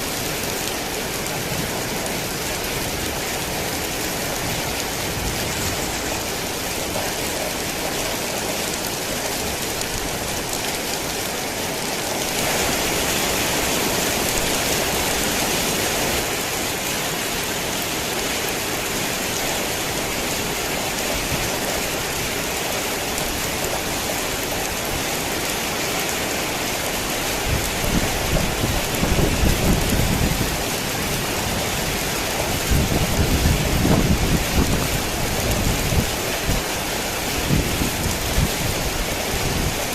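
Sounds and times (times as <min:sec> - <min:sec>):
heavy rain falling: 0:00.0 - 0:39.9
thunder rumbling: 0:27.4 - 0:36.7.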